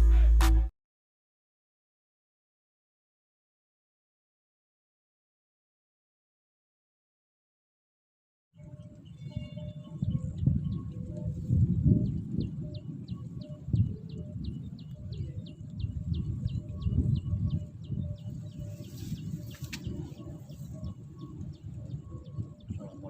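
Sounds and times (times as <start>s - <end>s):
bird chirping: 8.6s - 23.0s
wind buffeting microphone: 8.6s - 23.0s.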